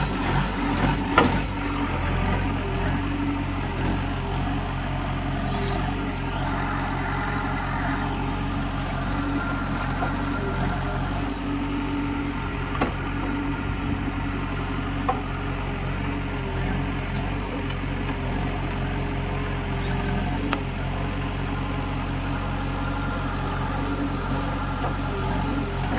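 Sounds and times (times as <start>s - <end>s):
diesel engine of heavy machinery: 0.0s - 25.9s.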